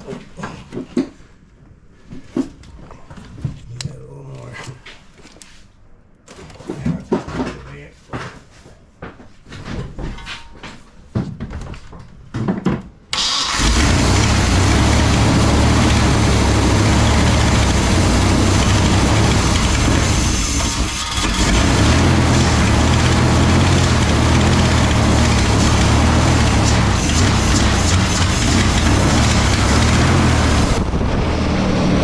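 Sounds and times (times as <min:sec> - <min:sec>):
car engine running loud: 0:13.2 - 0:32.0
knocks and clatter: 0:14.2 - 0:30.9.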